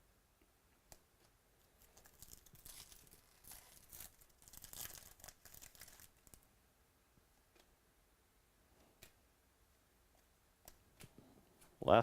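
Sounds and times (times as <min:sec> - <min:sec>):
cards and foil wrapper crinkling: 0:01.8 - 0:06.4.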